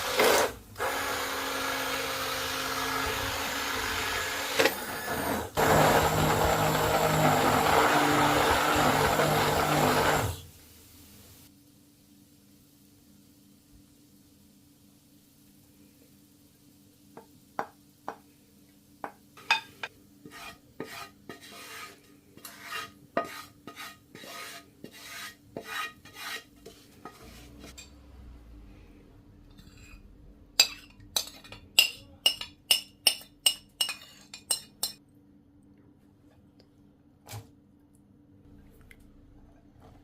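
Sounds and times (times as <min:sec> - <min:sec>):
spoon stirring and scraping in a pot: 0:19.1 - 0:28.0, 0:29.5 - 0:35.0.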